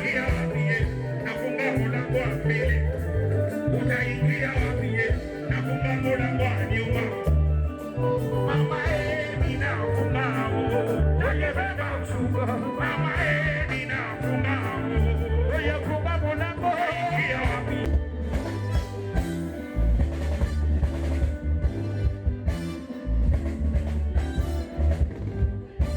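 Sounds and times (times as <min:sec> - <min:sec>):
person singing lead vocals: 0:00.0 - 0:18.8
guitar: 0:00.0 - 0:25.9
pulsing bass line: 0:00.0 - 0:25.9.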